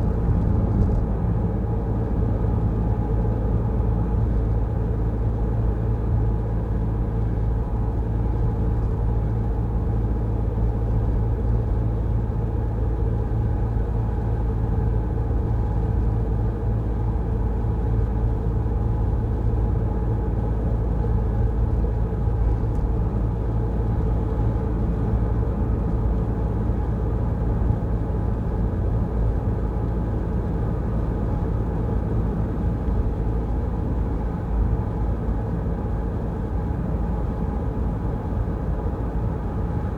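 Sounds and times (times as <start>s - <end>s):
car interior road rumble: 0.0s - 1.7s
engine hum: 0.0s - 4.2s.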